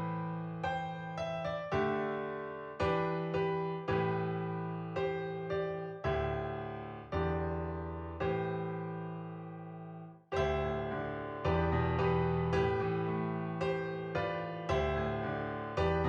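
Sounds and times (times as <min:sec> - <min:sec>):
piano chords ringing: 0:00.0 - 0:16.0.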